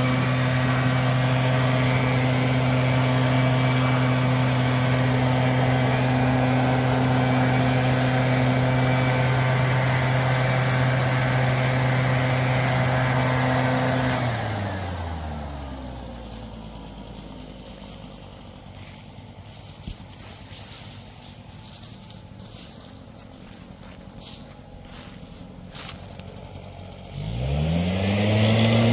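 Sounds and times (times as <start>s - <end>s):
engine running and winding down: 0.0s - 28.9s.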